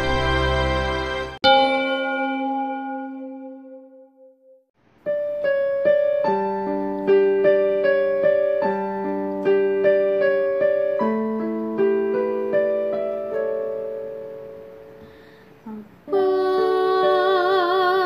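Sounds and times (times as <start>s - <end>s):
gentle piano playing broken chords: 0.0s - 18.0s.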